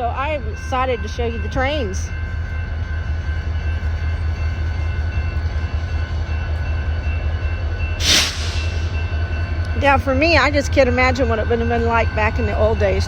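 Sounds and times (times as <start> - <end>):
diesel locomotive rumbling: 0.0 - 13.0.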